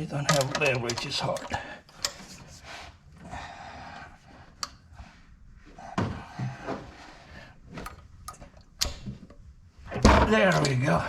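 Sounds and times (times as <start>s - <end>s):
wrench scraping on drain plug: 10.2s - 11.0s.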